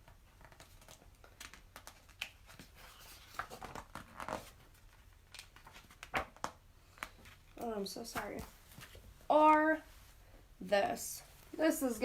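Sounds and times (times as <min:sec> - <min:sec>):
book pages turning: 0:00.0 - 0:09.0.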